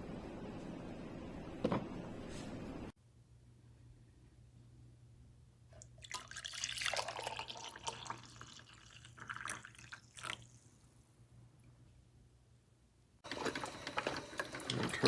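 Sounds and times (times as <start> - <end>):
water pouring and splashing: 6.0 - 10.6.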